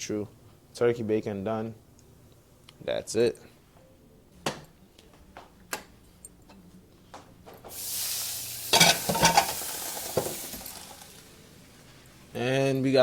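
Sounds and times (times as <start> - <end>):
food sizzling in frying pan: 7.7 - 11.5.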